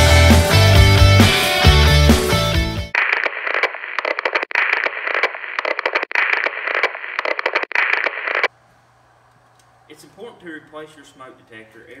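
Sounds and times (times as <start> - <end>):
crackling hissing static: 3.0 - 8.5.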